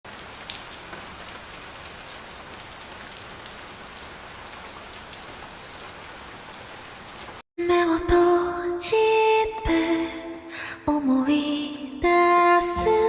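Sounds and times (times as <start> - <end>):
raindrop ticks: 0.1 - 7.4
steady rain hiss: 0.1 - 7.4.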